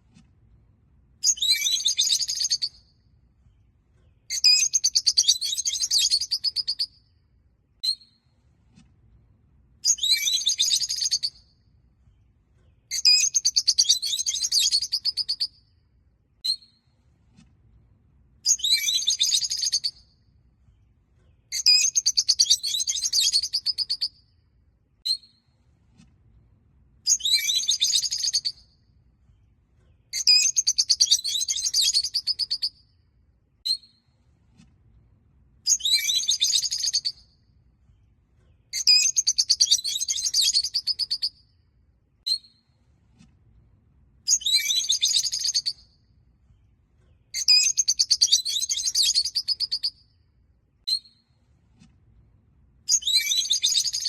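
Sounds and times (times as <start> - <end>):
short bird chirps: 1.2 - 2.9, 4.1 - 7.0, 9.8 - 11.5, 12.7 - 15.6, 18.5 - 20.2, 21.3 - 24.2, 27.1 - 28.7, 29.9 - 32.8, 35.7 - 37.3, 38.5 - 41.5, 44.3 - 45.9, 47.1 - 50.1, 52.9 - 54.0.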